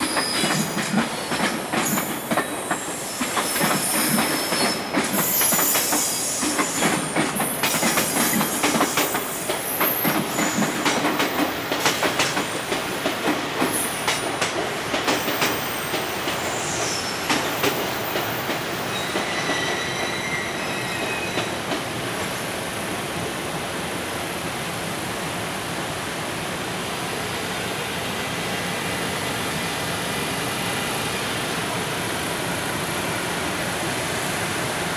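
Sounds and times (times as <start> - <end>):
high wheel squeals: 0.0 - 10.8, 15.3 - 21.6
train wheels clattering over rail joints: 0.0 - 20.2.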